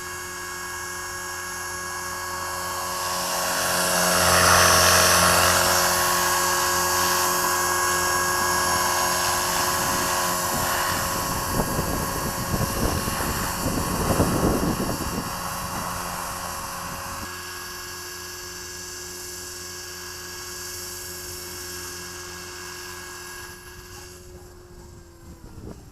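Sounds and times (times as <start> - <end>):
rc helicopter motor whining: 0.0 - 25.9
wind gusting on microphone: 3.6 - 17.3, 23.8 - 25.9.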